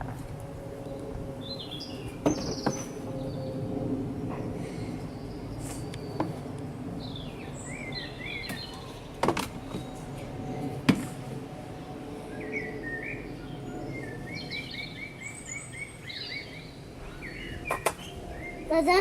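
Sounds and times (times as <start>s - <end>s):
small songbirds chirping: 7.0s - 10.1s, 12.4s - 18.7s.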